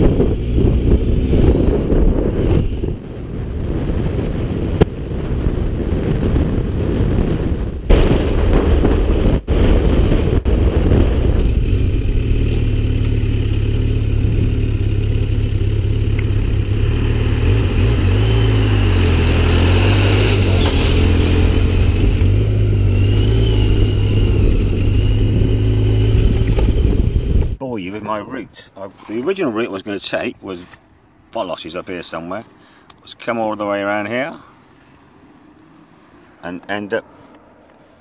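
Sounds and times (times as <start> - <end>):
engine running with low hum: 0.0 - 6.6, 10.1 - 27.6.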